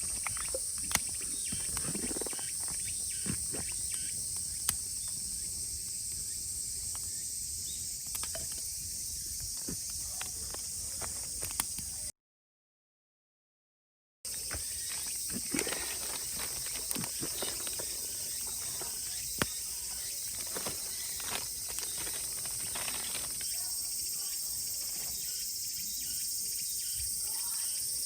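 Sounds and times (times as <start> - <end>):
sharp clicks and crackles: 0.0 - 5.2, 8.0 - 8.7, 9.4 - 11.9, 14.5 - 23.8
cicadas chorus: 0.0 - 12.1, 14.3 - 28.0.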